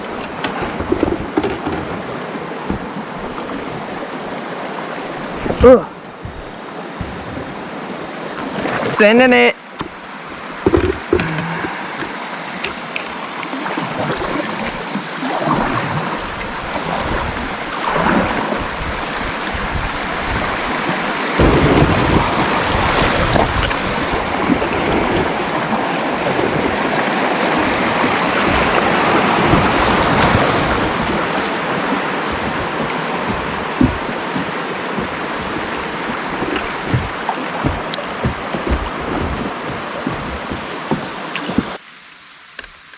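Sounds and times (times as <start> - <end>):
river water splashing: 0.0 - 42.9
knocks against kayak hull: 0.1 - 3.6, 6.2 - 7.6, 9.8 - 10.0, 10.6 - 13.1, 21.4 - 25.3, 27.6 - 41.8.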